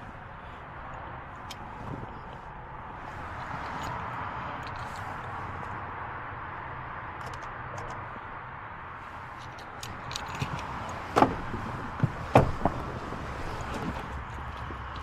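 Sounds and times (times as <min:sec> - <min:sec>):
sharp clicks and knocks: 0:09.4 - 0:15.0.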